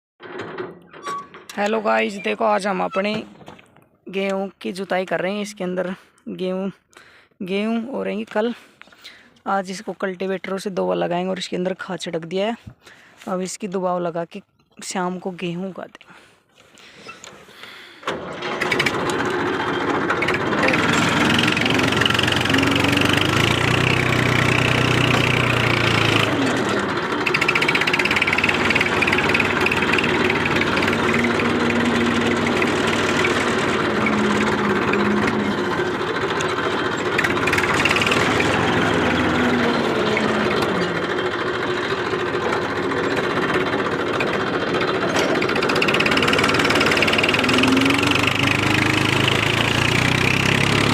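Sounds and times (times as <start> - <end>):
tractor diesel engine running: 16.2 - 50.9.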